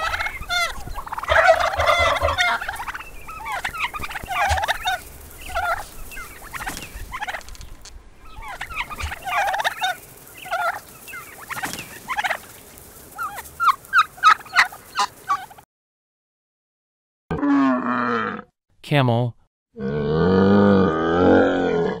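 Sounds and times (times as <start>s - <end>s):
turkeys gobbling: 0.0s - 15.6s.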